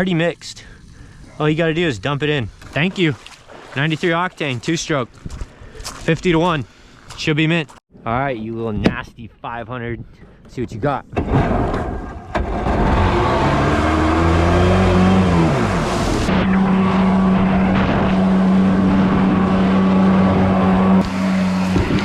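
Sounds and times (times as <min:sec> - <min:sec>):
jet ski engine revving: 0:12.4 - 0:22.0.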